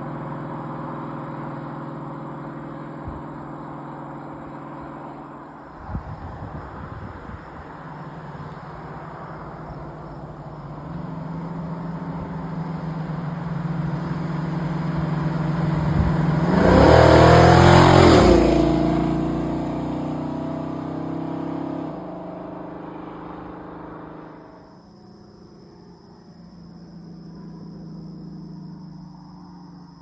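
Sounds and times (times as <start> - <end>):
car engine revving: 7.6 - 24.5.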